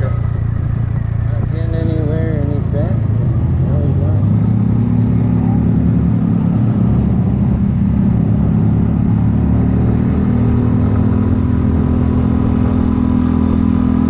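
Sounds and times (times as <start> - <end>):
scooter engine running: 0.0 - 4.8
road and wind noise: 0.0 - 14.0.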